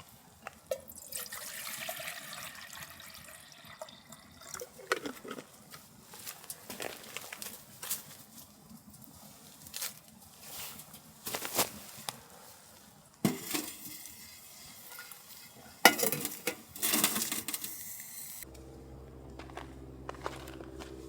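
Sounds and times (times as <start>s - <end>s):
metal cookware clinking and scraping: 13.3s - 18.4s
steady low hum: 18.3s - 21.0s.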